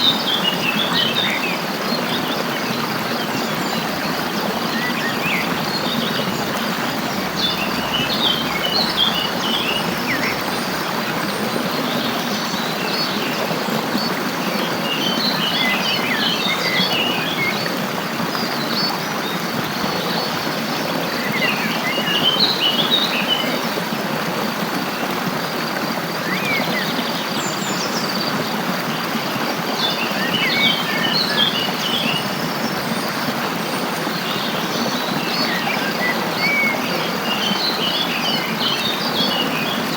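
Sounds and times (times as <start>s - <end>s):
songbirds chirping: 0.0s - 23.6s
stream rushing: 0.0s - 39.9s.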